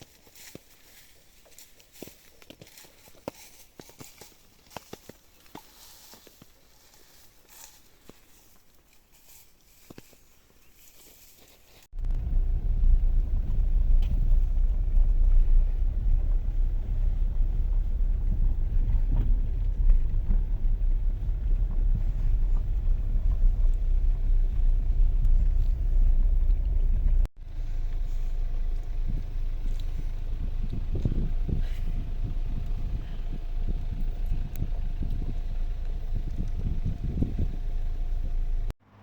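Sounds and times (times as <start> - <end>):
vehicle driving rumble: 11.9 - 39.0.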